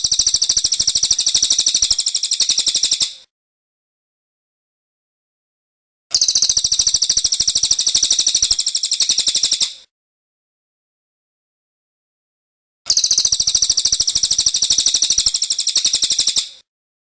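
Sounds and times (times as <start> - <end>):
songbird trilling: 0.0 - 3.2, 6.2 - 9.8, 12.9 - 16.5.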